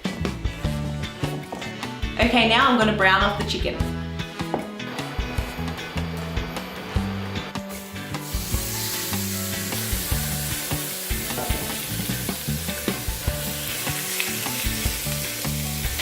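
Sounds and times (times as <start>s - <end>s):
chicken sizzling in a pan: 7.7s - 16.0s.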